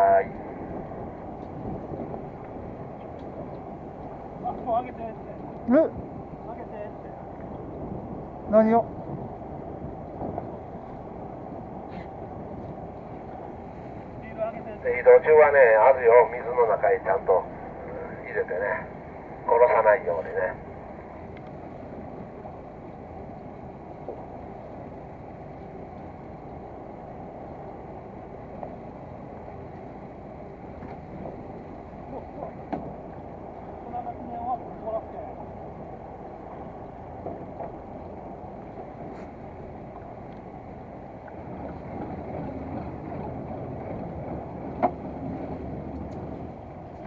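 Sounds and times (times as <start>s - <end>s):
boat engine rumble: 0.0s - 47.0s
water noise: 0.0s - 47.0s
small tick: 21.3s - 21.6s, 40.3s - 40.5s.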